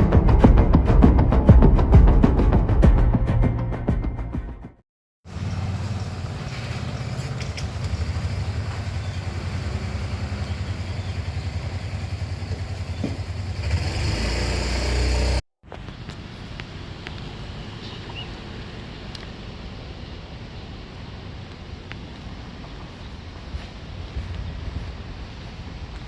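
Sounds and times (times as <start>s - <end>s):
train rumbling on track: 5.3s - 15.4s.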